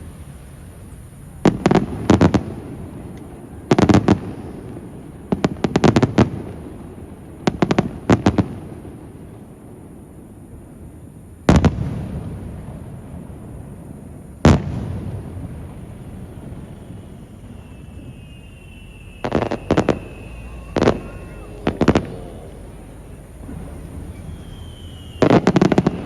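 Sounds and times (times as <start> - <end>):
fireworks bursting: 0.0 - 26.0
low rumbling echo: 15.2 - 26.0.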